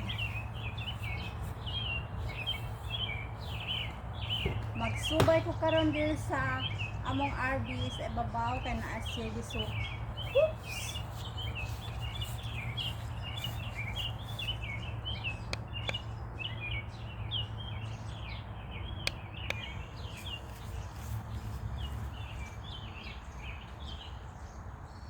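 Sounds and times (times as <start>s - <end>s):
small birds chirping: 0.0s - 25.0s
sharp clicks: 15.4s - 16.1s, 19.0s - 19.7s.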